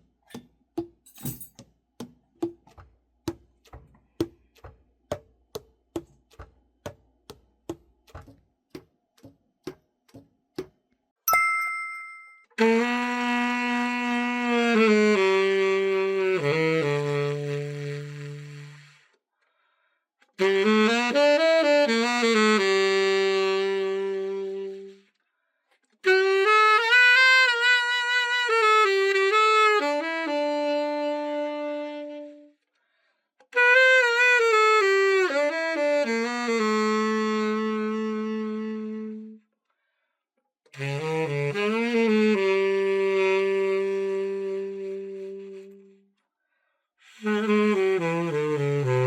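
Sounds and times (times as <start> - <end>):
tenor saxophone held notes: 12.6 - 19.1, 20.3 - 25.1, 26.0 - 32.6, 33.5 - 39.4, 40.8 - 46.0, 47.0 - 49.0.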